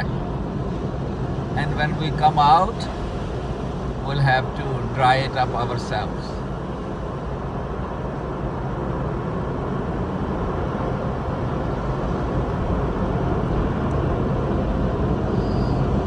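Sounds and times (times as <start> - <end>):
car wash rushing noise: 0.0 - 16.0
low machinery hum: 0.0 - 16.0.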